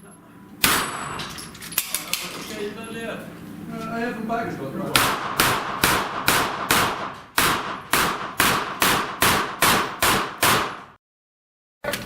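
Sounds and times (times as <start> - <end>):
rapid gunshots with echo: 5.0 - 11.0.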